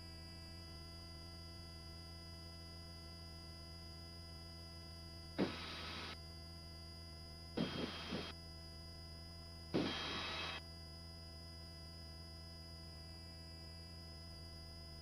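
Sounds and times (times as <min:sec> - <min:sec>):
helicopter hum through headset: 0:05.4 - 0:06.1, 0:07.6 - 0:08.3
headset microphone hiss bursts: 0:05.4 - 0:06.2, 0:07.6 - 0:08.3, 0:09.8 - 0:10.6.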